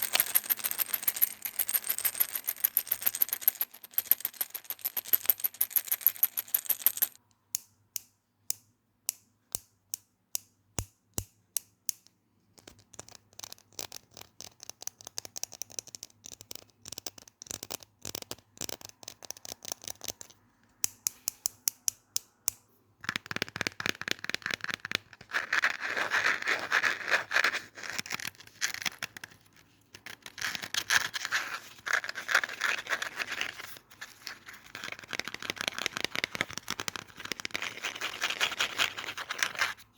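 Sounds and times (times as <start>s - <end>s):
scratching on objects: 23.2s - 39.9s.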